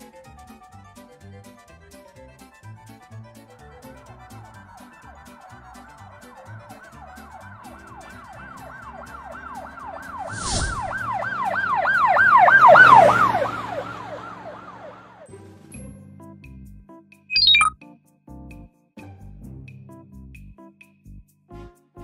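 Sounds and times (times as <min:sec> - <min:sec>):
light background music: 0:00.0 - 0:10.3, 0:15.2 - 0:21.0
police siren yelp: 0:04.4 - 0:15.3
short bright sound effect: 0:17.3 - 0:17.7.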